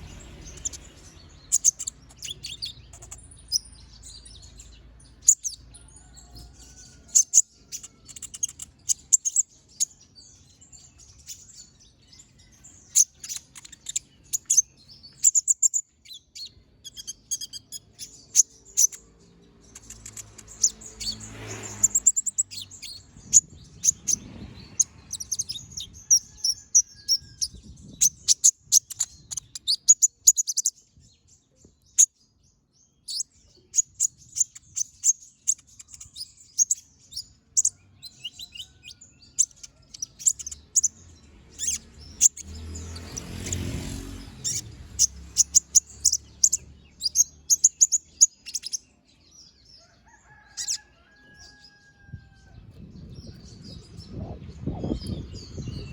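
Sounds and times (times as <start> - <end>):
sunbird singing high chirps: 0.0 - 50.8, 52.6 - 55.9.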